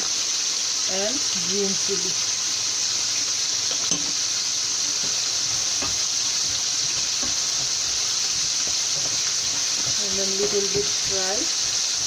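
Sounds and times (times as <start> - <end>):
onions sizzling in oil: 0.0 - 12.0
wooden spoon knocks: 5.0 - 11.2.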